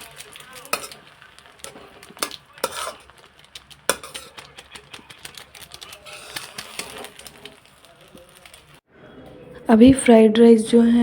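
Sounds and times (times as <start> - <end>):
metal spoon scraping a pan: 0.0 - 8.6.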